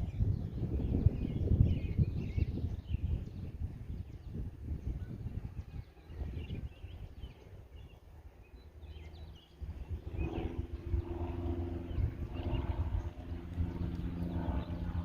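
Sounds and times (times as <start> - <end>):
steady droning hum: 5.0 - 15.0.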